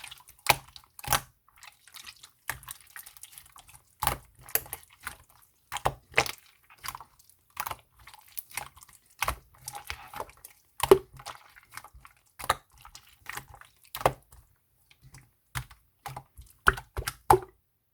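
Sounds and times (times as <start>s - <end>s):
slime clicks and wet pops: 10.8s - 11.2s, 15.5s - 17.5s.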